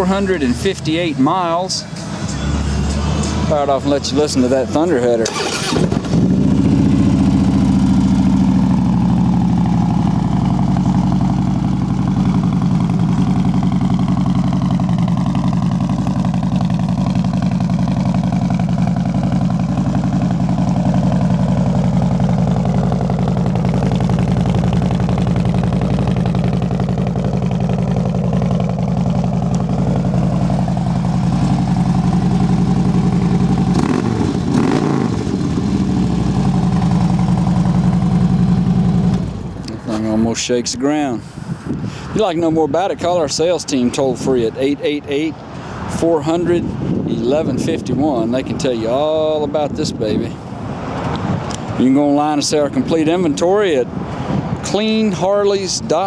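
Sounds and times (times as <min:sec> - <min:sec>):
motorcycle engine idling: 0:03.3 - 0:39.8.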